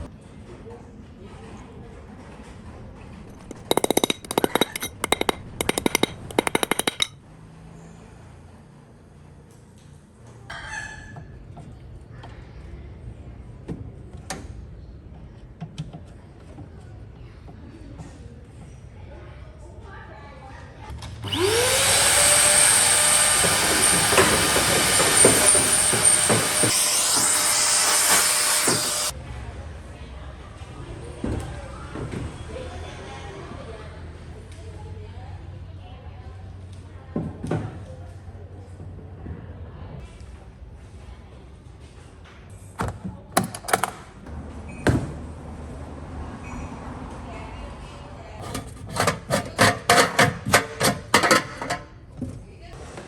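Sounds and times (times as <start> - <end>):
hand tool metallic clicking: 3.3 - 7.1
sharp knocks: 3.3 - 7.2.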